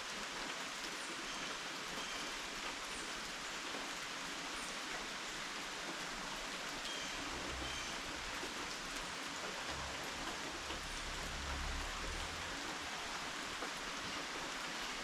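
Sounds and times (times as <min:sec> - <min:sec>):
steady rain falling: 0:00.0 - 0:15.0
low rumble: 0:09.7 - 0:13.1.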